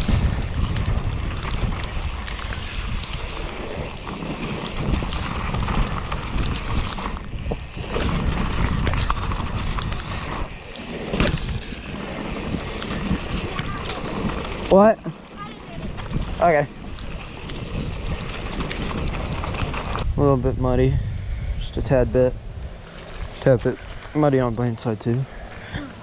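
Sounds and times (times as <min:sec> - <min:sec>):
bike rattling and clicking: 0:00.0 - 0:20.1, 0:22.6 - 0:26.0
tyres rolling through mud: 0:00.0 - 0:20.1
wind rushing over microphone: 0:00.0 - 0:26.0.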